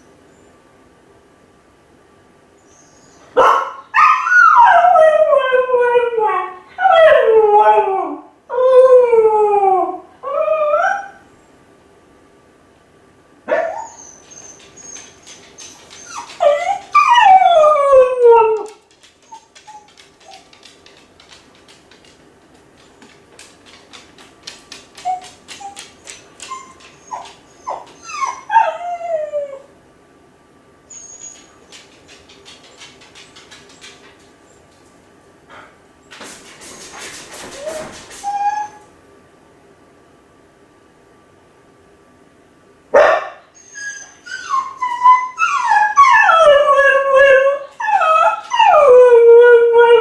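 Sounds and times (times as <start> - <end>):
dog whining and howling: 3.9 - 11.2, 13.5 - 21.0, 25.0 - 29.7, 30.9 - 34.0, 37.5 - 38.9, 43.5 - 50.0
dog whimpering: 13.5 - 20.6, 25.0 - 29.7, 30.9 - 34.1, 37.5 - 38.8, 43.6 - 50.0
faint clicks: 31.2 - 34.9.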